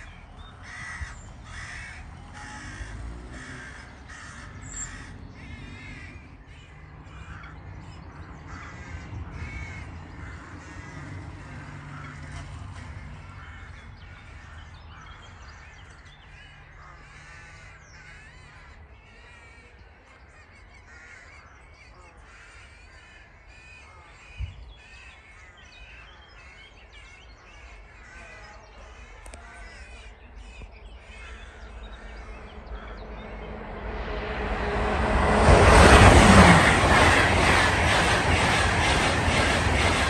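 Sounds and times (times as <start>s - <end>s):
high-speed train rushing: 0.0s - 15.4s, 31.4s - 40.0s
birds cawing: 0.0s - 40.0s.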